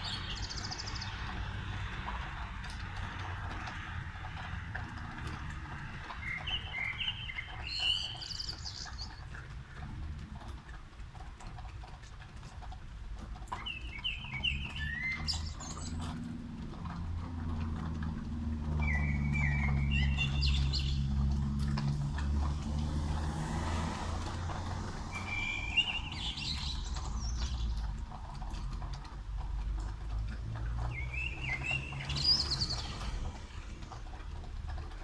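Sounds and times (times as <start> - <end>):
songbird chirping: 0.0 - 1.6, 6.0 - 9.4, 13.5 - 17.0, 18.6 - 21.8, 24.5 - 28.0, 30.8 - 33.6
vehicle engine rumble: 0.0 - 35.0
tyre hiss on wet street: 13.0 - 28.2.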